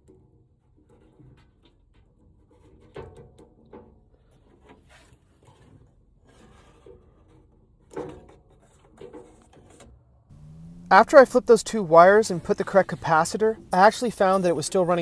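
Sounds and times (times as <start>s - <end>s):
faint steady hum: 10.3s - 15.0s.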